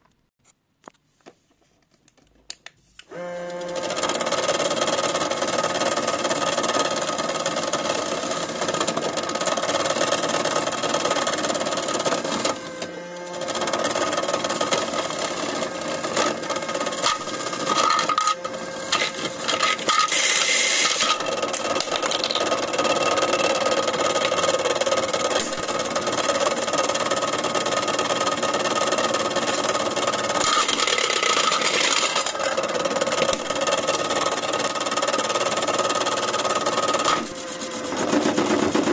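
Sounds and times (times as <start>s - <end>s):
washing machine motor tone: 3.1s - 38.9s
washing machine rattling: 37.8s - 38.9s.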